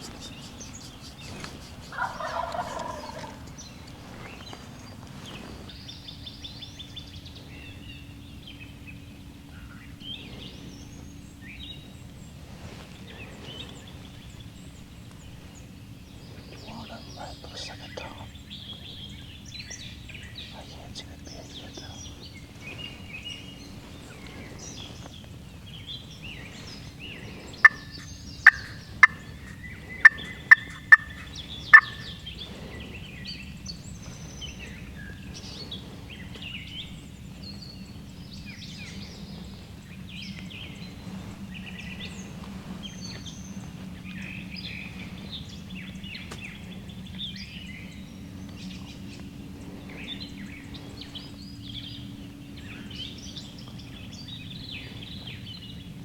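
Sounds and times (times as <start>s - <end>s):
turkey calls: 0.0s - 4.7s, 26.4s - 32.8s
songbirds chirping: 0.0s - 56.0s.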